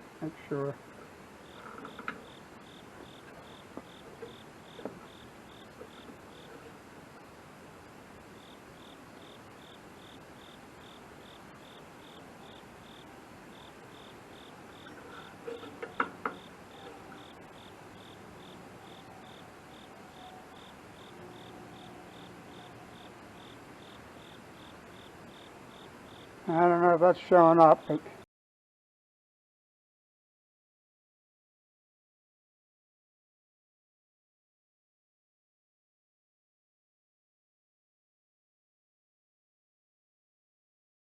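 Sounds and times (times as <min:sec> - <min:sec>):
cricket chirping: 0:01.4 - 0:26.7
light clicks and knocks: 0:14.8 - 0:17.3.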